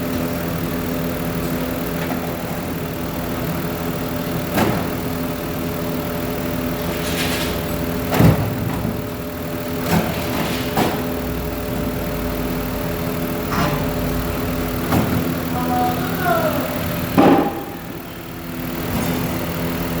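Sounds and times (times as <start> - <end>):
car engine idling: 0.0 - 7.0, 11.0 - 20.0
sharp engine knocks: 4.4 - 5.0, 6.9 - 9.1, 17.1 - 18.0.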